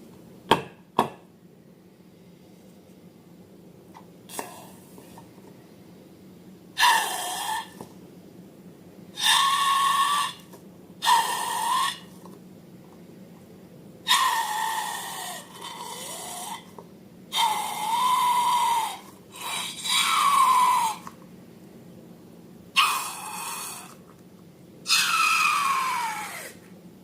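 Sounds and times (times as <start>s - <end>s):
air squealing out of balloon: 24.9s - 26.6s.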